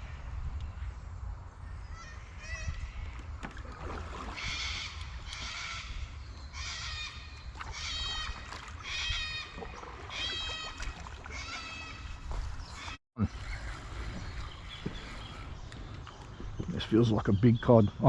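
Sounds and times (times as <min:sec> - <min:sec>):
bird calling: 0:04.2 - 0:18.0.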